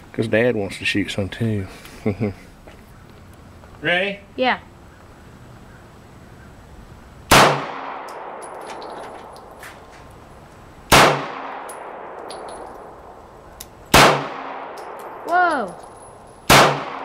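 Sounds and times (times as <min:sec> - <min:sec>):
gunshots with echo: 0:07.3 - 0:08.9, 0:10.9 - 0:12.2, 0:13.9 - 0:15.2, 0:16.5 - 0:17.0.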